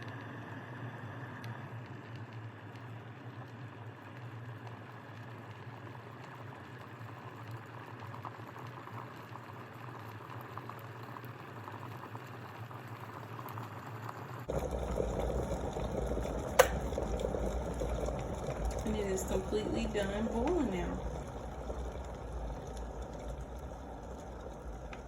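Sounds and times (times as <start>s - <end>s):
kettle water bubbling: 0.0s - 25.0s
kettle switch click: 16.6s - 16.9s.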